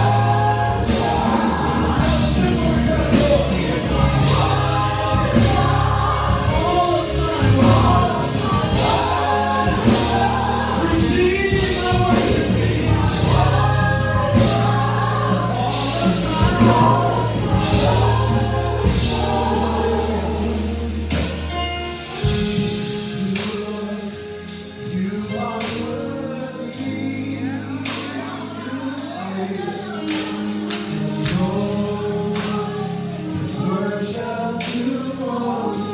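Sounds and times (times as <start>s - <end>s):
gospel choir singing: 0.0s - 35.9s
live band with bass and drums: 0.0s - 35.9s.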